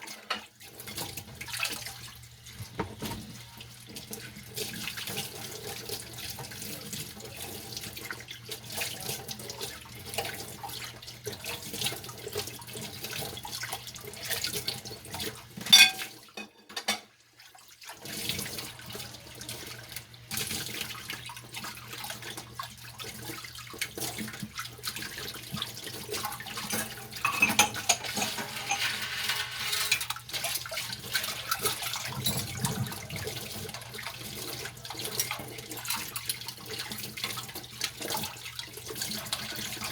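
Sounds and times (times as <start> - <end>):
dishes knocking and clinking: 2.6 - 3.3, 15.7 - 17.1, 26.8 - 30.1
tap running: 2.6 - 3.4.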